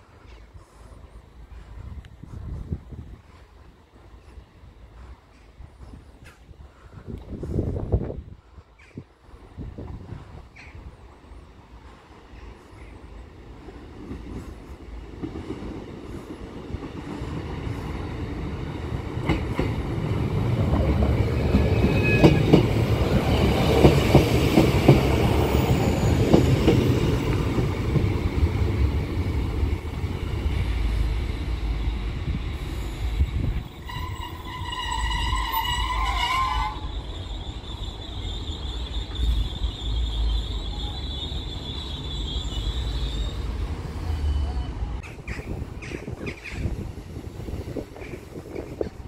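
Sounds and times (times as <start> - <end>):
train engine: 0.0 - 49.0
wheels clacking over rail joints: 16.8 - 30.6
train horn: 33.8 - 37.1.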